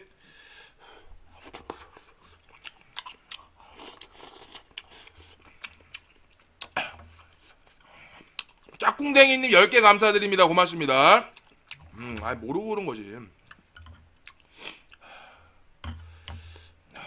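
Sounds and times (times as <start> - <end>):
man chewing food: 1.0 - 8.8, 11.3 - 12.4, 13.3 - 17.0.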